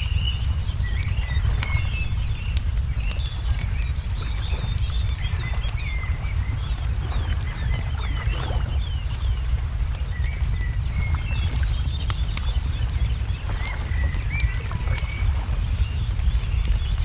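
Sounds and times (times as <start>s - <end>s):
low rumble: 0.0s - 17.0s
songbird chirping: 0.0s - 17.0s
wood fire crackling: 0.0s - 17.0s.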